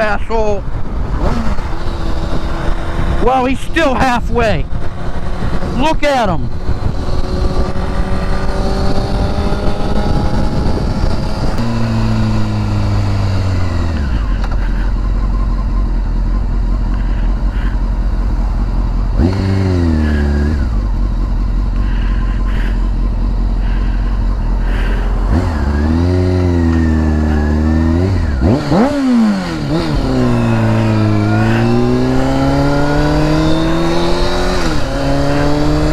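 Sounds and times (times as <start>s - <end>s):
motorcycle engine running: 0.0s - 35.9s
wind rush: 6.4s - 12.6s.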